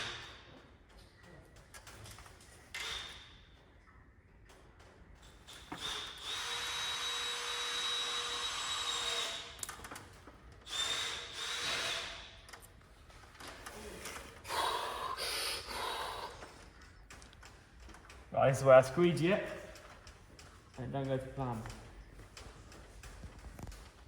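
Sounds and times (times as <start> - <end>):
handheld power tool whining: 5.5 - 10.0, 10.6 - 12.6.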